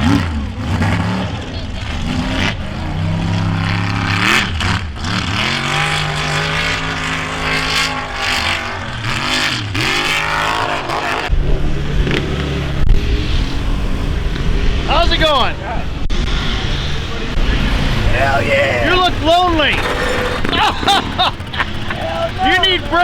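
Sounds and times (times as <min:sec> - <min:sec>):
vehicle engine revving: 0:00.0 - 0:23.0
loud low rumble: 0:11.3 - 0:23.0.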